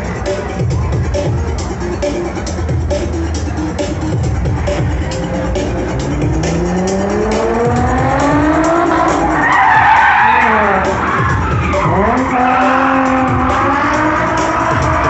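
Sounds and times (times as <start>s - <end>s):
music: 0.0s - 15.0s
car engine revving: 2.0s - 15.0s
tires skidding on pavement: 6.2s - 15.0s.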